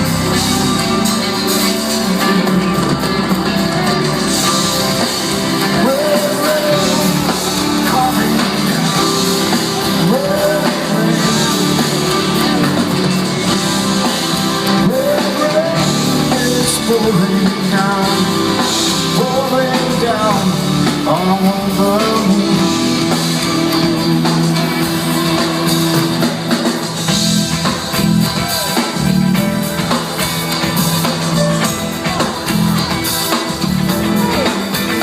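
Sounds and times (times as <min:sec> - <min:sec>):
person singing: 0:00.0 - 0:26.7
rock band playing: 0:00.0 - 0:35.0.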